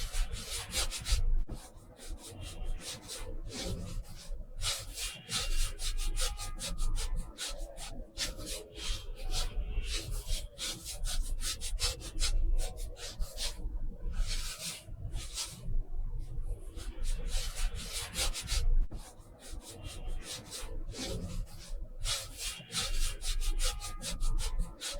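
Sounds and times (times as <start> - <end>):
paintbrush brushing on paper: 0.0 - 24.9.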